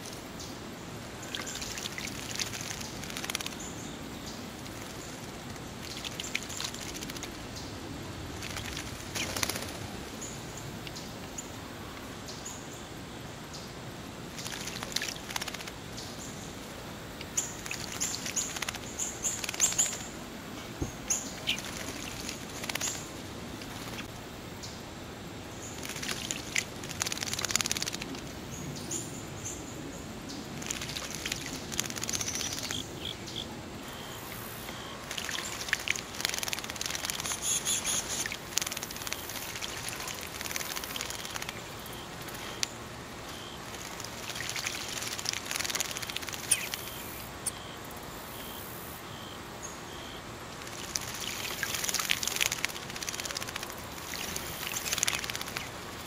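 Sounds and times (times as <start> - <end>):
birds splashing in water: 1.2 - 3.7, 4.5 - 7.4, 8.3 - 10.0, 14.3 - 15.8, 17.2 - 20.2, 20.8 - 24.1, 25.7 - 28.2, 30.6 - 33.2, 34.2 - 47.4, 50.5 - 56.0.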